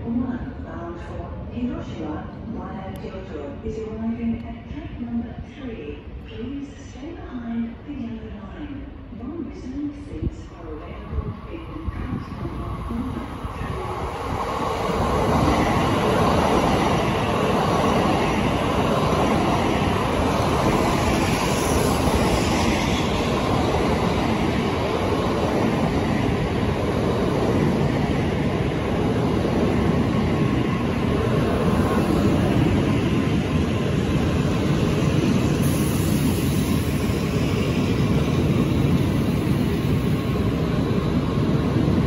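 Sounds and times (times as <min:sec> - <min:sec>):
train rushing past: 0:11.1 - 0:42.0.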